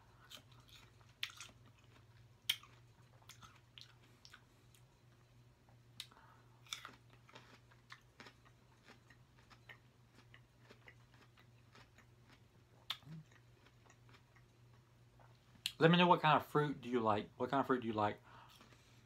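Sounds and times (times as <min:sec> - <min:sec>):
low steady hum: 0:00.0 - 0:19.0
wet chewing clicks and smacks: 0:00.3 - 0:04.9, 0:06.0 - 0:15.8.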